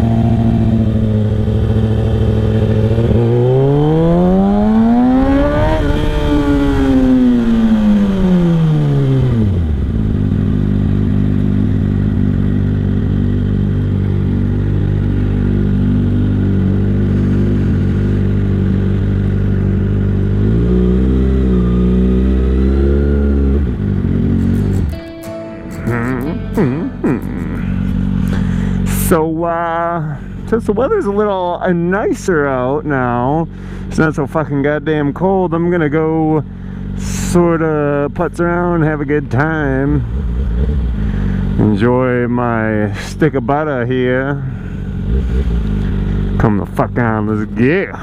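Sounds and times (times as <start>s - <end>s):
motorcycle engine revving: 0.0s - 25.0s, 25.9s - 29.2s, 44.5s - 47.3s.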